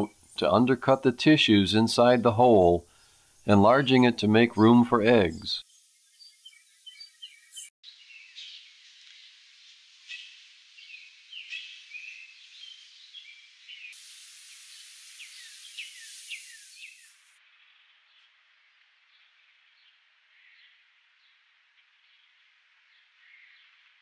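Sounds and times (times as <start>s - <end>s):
steady high hiss: 0.0s - 7.7s, 8.8s - 17.6s
faint birdsong chirps: 0.0s - 24.0s
thin outdoor hiss: 0.0s - 24.0s.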